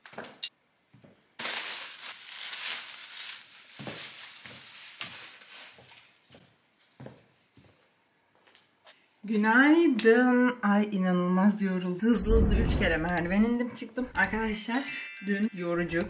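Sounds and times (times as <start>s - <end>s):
paper packaging rustling: 1.4s - 6.3s.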